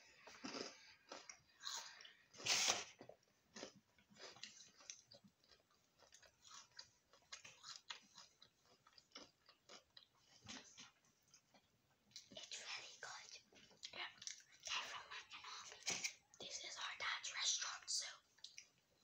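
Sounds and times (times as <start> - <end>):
chewing clicks and smacks: 3.0 - 12.5, 13.2 - 14.7.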